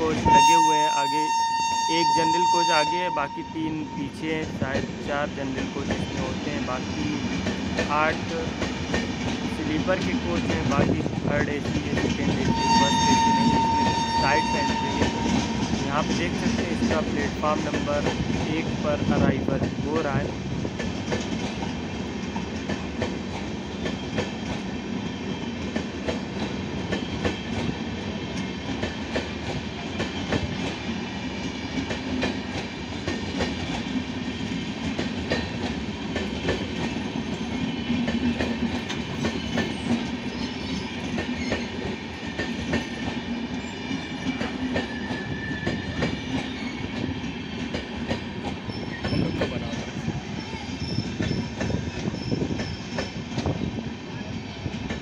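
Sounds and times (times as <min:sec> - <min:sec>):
train wheels clattering over rail joints: 0:04.4 - 0:14.0, 0:14.7 - 0:53.6.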